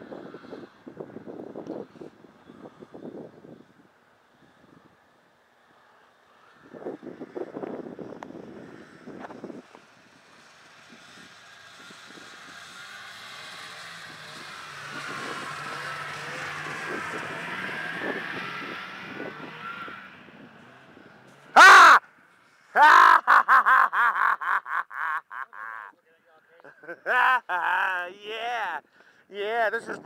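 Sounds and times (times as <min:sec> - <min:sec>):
engine passing: 0:00.0 - 0:25.9
loud cawing calls: 0:21.6 - 0:22.0.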